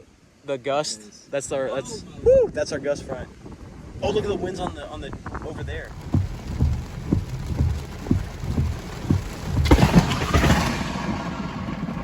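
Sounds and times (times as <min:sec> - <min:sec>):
wind buffeting microphone: 0:01.8 - 0:12.0
thunder crack and crash: 0:05.2 - 0:12.0.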